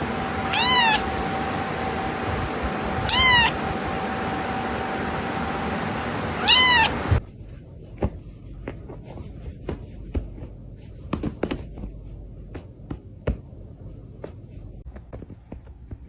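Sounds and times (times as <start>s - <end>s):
light taps and knocks: 7.9s - 15.6s.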